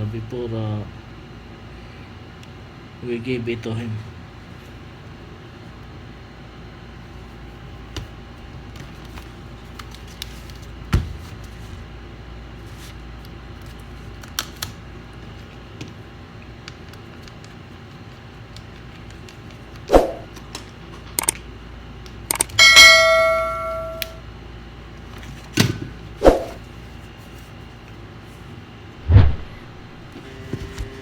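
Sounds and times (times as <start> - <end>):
bell-like ding: 22.6 - 24.2.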